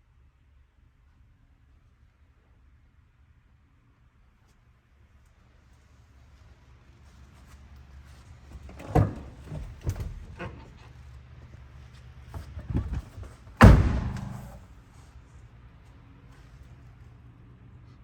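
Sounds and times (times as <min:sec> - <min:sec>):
low steady hum: 0:01.4 - 0:18.0
truck door slamming: 0:12.4 - 0:14.6.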